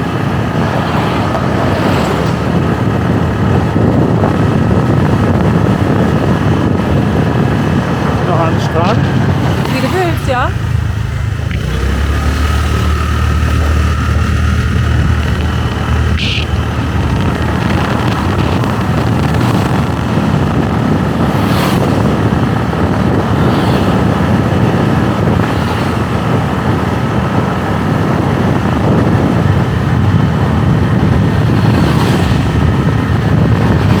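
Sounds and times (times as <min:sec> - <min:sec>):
motorbike engine rumble: 0:00.0 - 0:34.0
wind buffeting microphone: 0:00.0 - 0:34.0.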